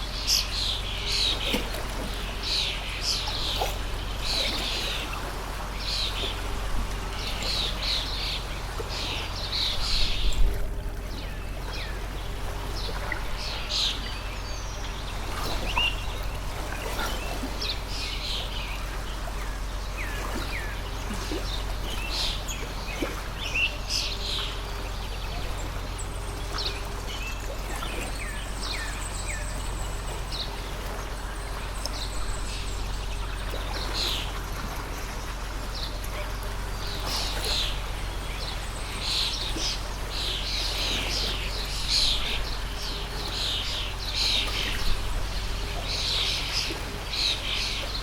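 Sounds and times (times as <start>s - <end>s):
flowing stream: 0.0s - 48.0s
small birds chirping: 11.1s - 48.0s.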